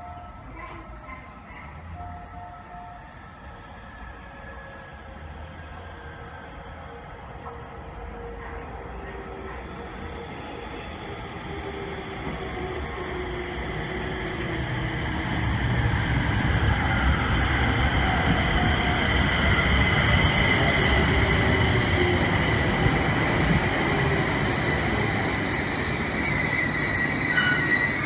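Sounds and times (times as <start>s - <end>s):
electric train running on rails: 0.0s - 28.0s
thin high wheel squeals: 24.8s - 28.0s.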